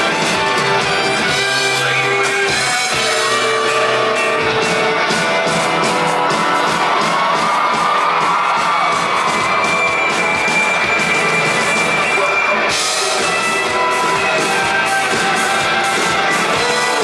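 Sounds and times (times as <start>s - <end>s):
live rock band instrumental: 0.0s - 17.0s.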